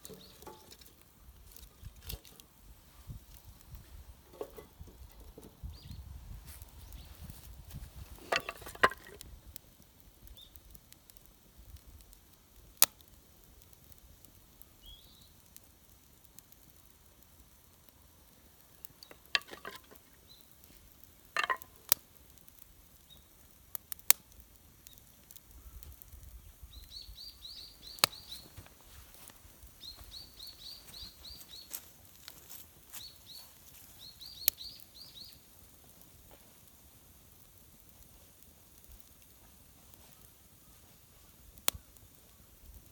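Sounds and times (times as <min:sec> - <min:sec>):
small bird chirping: 0:05.6 - 0:06.1, 0:14.8 - 0:15.3, 0:26.4 - 0:28.6, 0:29.8 - 0:31.9, 0:32.9 - 0:35.4
sharp clicks and knocks: 0:19.0 - 0:20.0, 0:21.4 - 0:22.0.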